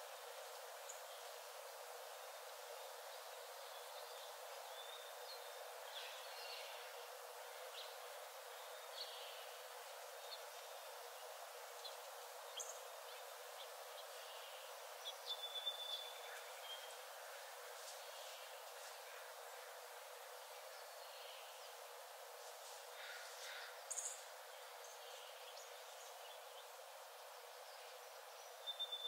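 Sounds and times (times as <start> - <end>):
soft forest hiss: 0.0 - 29.0.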